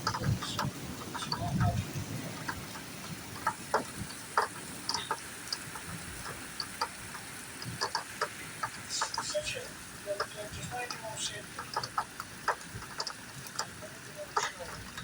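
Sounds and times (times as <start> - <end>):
faint rain hiss: 0.0 - 15.0
rain drips on hard surfaces: 0.0 - 15.0.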